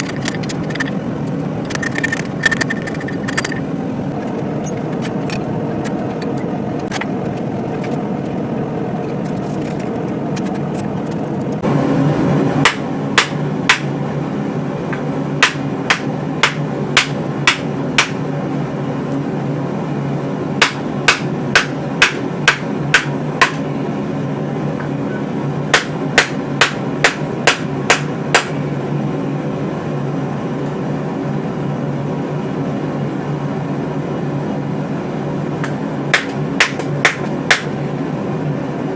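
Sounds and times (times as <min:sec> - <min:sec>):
steady low hum: 0:00.0 - 0:38.9
hammer striking steel on anvil: 0:12.7 - 0:14.0, 0:15.4 - 0:18.2, 0:20.6 - 0:23.6, 0:25.8 - 0:28.6, 0:35.6 - 0:37.8.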